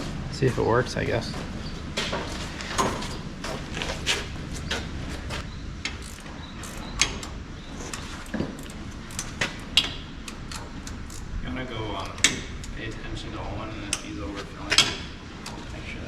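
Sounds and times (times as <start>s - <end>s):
steady low rumble: 0.0s - 16.0s
sharp metal clicks and clinks: 5.8s - 11.3s.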